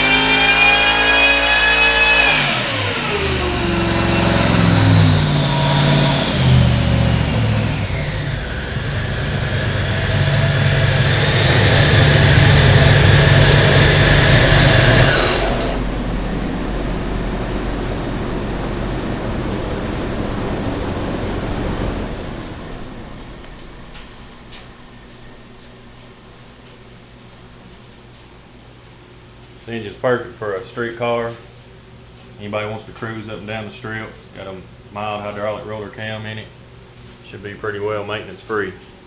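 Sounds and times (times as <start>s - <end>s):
engine revving and idling: 0.0s - 24.9s
steady rushing noise: 3.6s - 24.6s.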